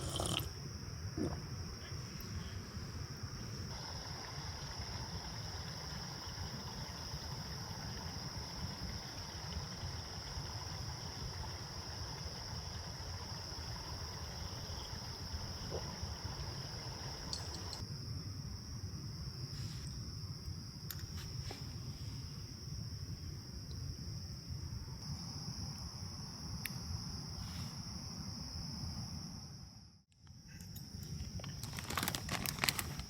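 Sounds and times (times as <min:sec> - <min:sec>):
insects chirring: 0:00.0 - 0:33.0.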